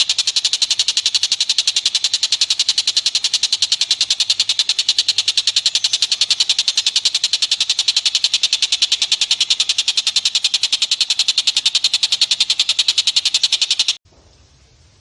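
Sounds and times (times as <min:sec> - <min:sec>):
animal chattering trill: 0:00.0 - 0:14.0.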